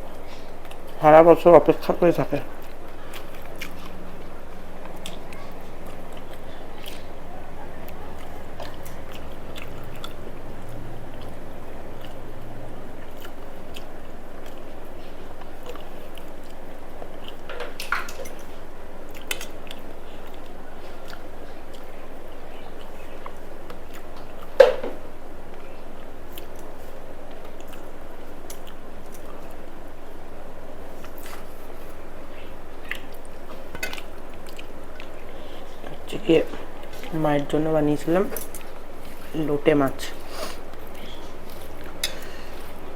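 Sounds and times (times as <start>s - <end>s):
person chewing food: 0.0s - 1.0s, 1.8s - 42.9s
steady background noise: 0.0s - 42.9s.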